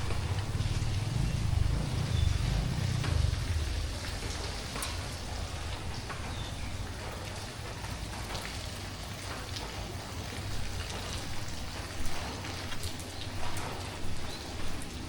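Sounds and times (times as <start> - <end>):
low rumble: 0.0 - 8.2
drips ticking on surfaces: 0.0 - 15.0
steady rain hiss: 0.0 - 15.0.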